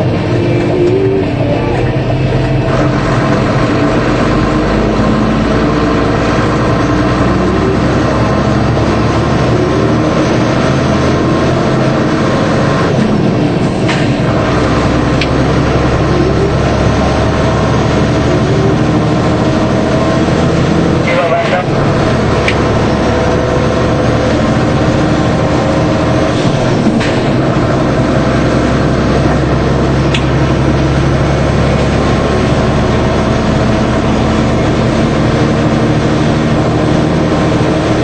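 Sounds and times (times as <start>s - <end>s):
road noise: 0.0s - 38.0s
truck engine drone: 0.0s - 38.0s.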